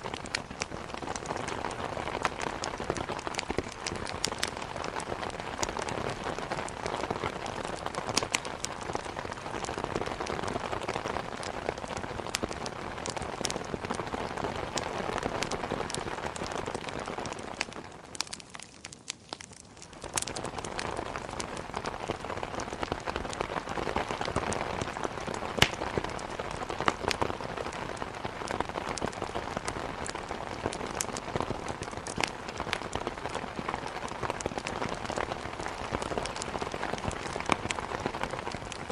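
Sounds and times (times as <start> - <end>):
wood fire crackling: 0.0 - 38.9
heavy rain against window: 20.3 - 38.9.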